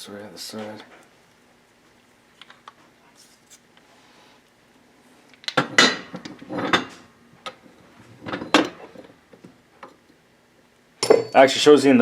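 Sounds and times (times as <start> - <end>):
metal parts and tools clinking: 11.0 - 11.5.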